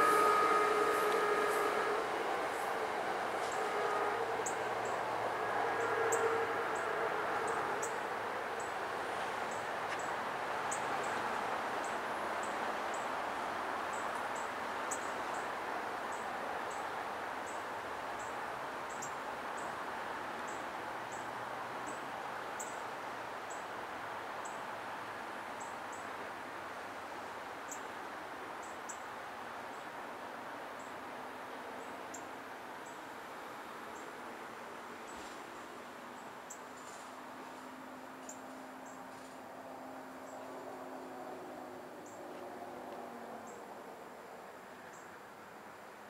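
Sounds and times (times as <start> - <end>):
electric train motor hum: 0.0 - 7.8
train running noise: 0.0 - 25.6.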